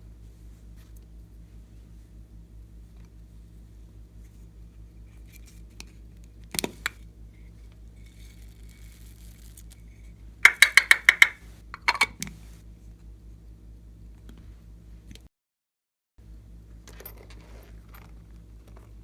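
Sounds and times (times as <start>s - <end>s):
hard objects clinking: 10.5s - 12.2s.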